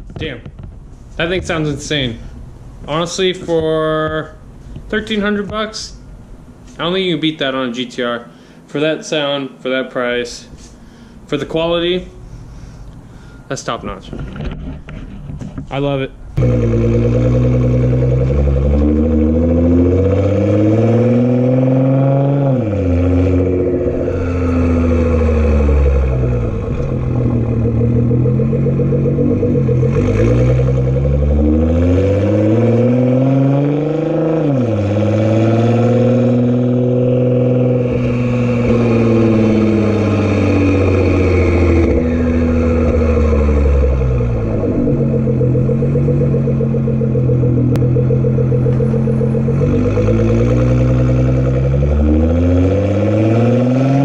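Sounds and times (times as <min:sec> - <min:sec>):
car engine revving under load: 0:16.3 - 0:54.0.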